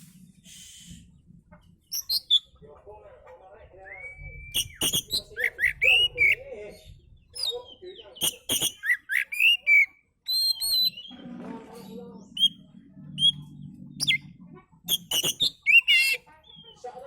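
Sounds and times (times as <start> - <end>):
bird singing whistled notes: 1.9 - 2.5, 3.8 - 6.4, 8.2 - 11.1, 14.0 - 14.3, 14.9 - 16.7
low hum: 12.2 - 14.9.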